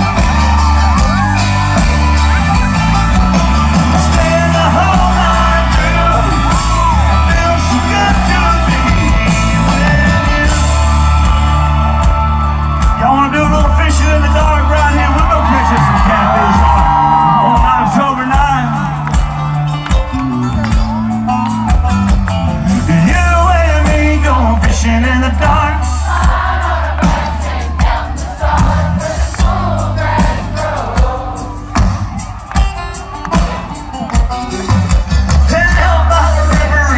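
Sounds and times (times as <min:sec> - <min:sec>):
loud rock music: 0:00.0 - 0:36.9
person singing: 0:02.4 - 0:16.6, 0:32.9 - 0:36.9.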